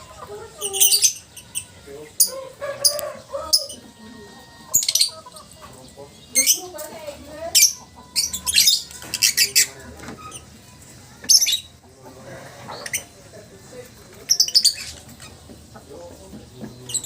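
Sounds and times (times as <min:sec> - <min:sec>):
lovebird chirping and squawking: 0:00.5 - 0:03.9, 0:04.7 - 0:05.6, 0:06.3 - 0:06.8, 0:07.5 - 0:10.5, 0:11.3 - 0:11.8, 0:12.7 - 0:13.2, 0:14.3 - 0:15.3.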